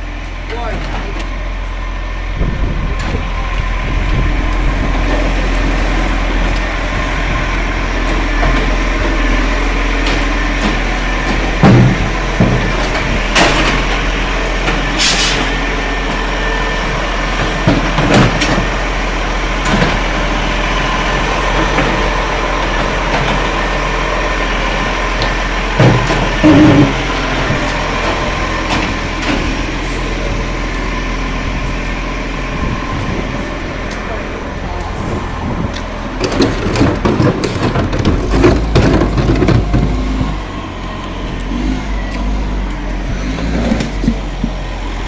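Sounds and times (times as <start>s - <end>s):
garbage truck diesel engine: 0.0s - 45.0s
sharp knocks and bangs: 10.0s - 15.6s, 17.4s - 18.7s, 25.2s - 27.0s.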